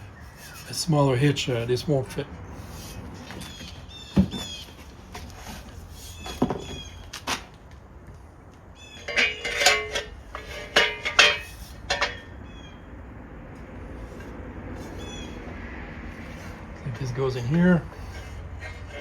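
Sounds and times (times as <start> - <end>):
birds chirping: 0.0 - 5.3, 6.0 - 7.2, 8.7 - 9.6, 12.0 - 13.0, 14.9 - 15.5
metal bike rack clanking: 8.8 - 12.8, 16.2 - 19.0.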